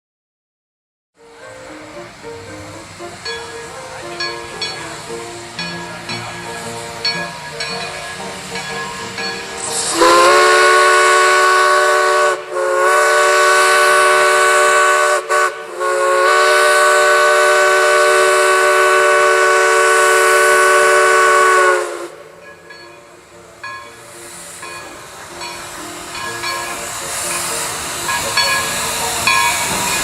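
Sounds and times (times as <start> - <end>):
steam locomotive whistle blasts: 9.0 - 22.8.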